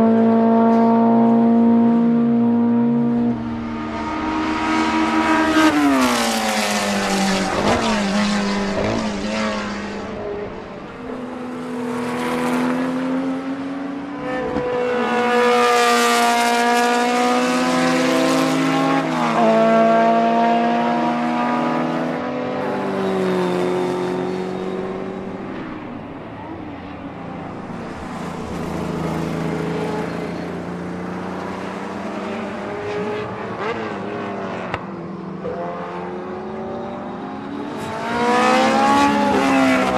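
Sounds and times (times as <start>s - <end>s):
racing engine revving: 0.0s - 26.7s, 35.4s - 39.9s.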